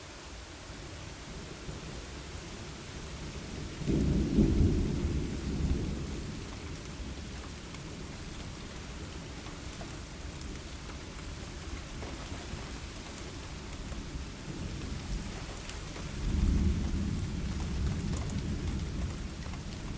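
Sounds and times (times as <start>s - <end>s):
steady rain: 0.0s - 19.9s
thunder clap rumbling: 3.8s - 7.5s, 14.5s - 19.9s.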